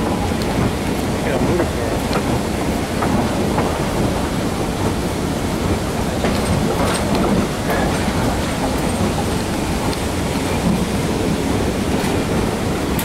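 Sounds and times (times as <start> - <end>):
train wheels rolling on rails: 0.0 - 13.0.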